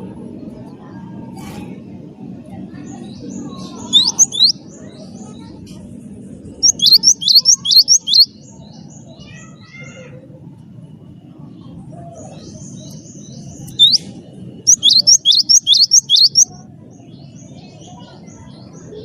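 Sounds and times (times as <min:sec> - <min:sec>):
low background noise: 0:00.0 - 0:19.0
faint bird chirps: 0:03.4 - 0:05.6, 0:06.6 - 0:09.8, 0:11.5 - 0:19.0
bird singing whistled notes: 0:03.6 - 0:04.7, 0:06.6 - 0:08.4, 0:12.7 - 0:16.6.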